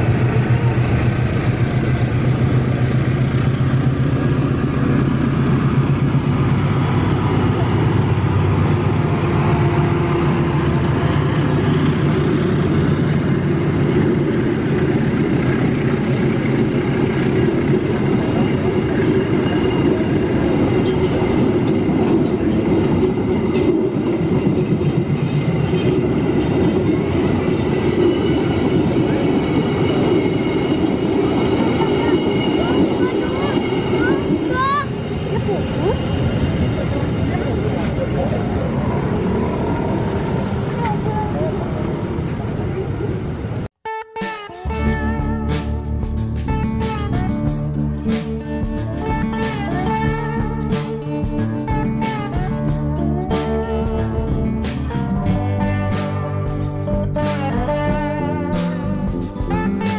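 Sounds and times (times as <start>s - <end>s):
locomotive engine drone: 0.0s - 43.7s, 44.6s - 59.9s
train coaches rumbling: 0.0s - 43.7s, 44.6s - 59.9s.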